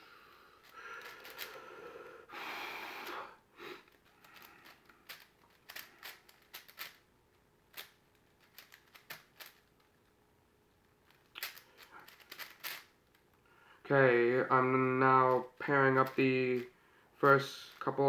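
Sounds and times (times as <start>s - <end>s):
puzzle cube plastic clicks: 0.6s - 1.6s, 3.8s - 13.4s, 14.4s - 18.0s.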